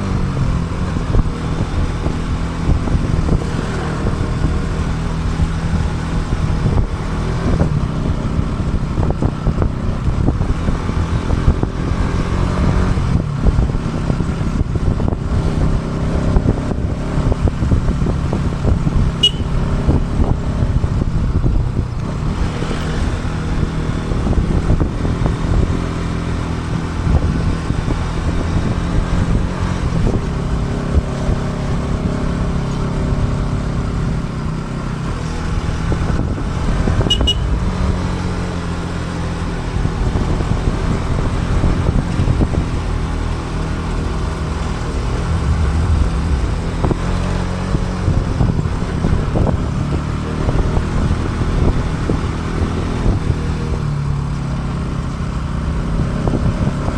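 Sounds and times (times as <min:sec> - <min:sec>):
motorcycle engine running: 0:00.0 - 0:56.9
wind and road rumble: 0:00.0 - 0:56.9.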